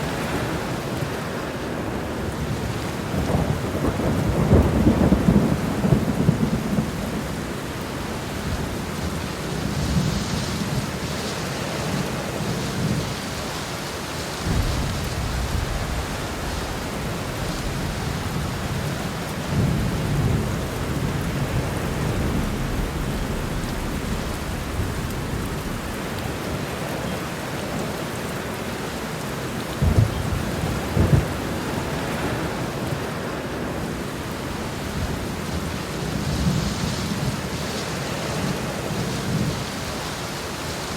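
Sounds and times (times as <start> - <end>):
heavy rain: 0.0 - 40.9
thunder rumbling: 1.7 - 11.2, 14.4 - 28.5, 29.7 - 34.0
thunder cracks: 14.4 - 27.4, 29.8 - 31.6.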